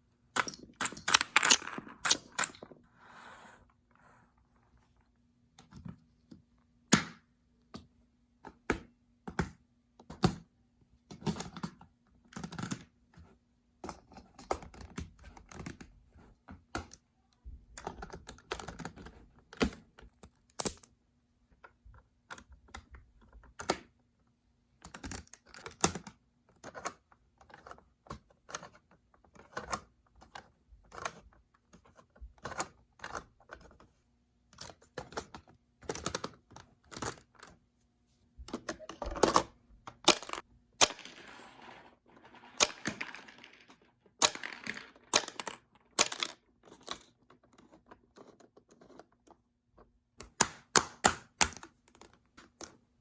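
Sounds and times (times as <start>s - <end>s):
plastic pieces clicking and clattering: 0.3s - 2.8s, 34.5s - 37.6s, 38.5s - 49.4s.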